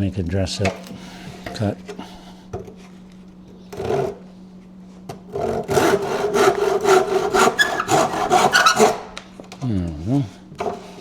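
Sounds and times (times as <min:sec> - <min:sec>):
hand saw cutting wood: 0:03.8 - 0:04.2, 0:05.3 - 0:09.2.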